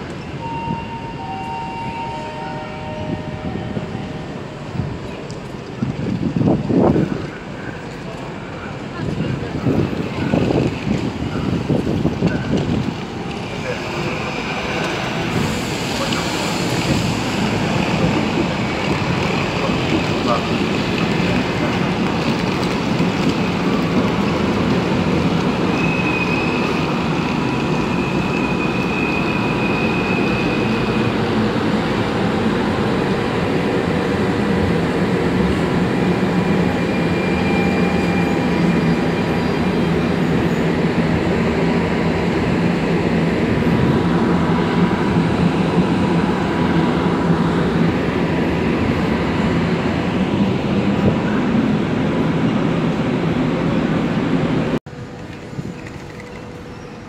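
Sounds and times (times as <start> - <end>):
train wheels rumbling on rail: 0.0 - 57.0
high wheel squeal: 25.6 - 31.2, 36.7 - 40.8.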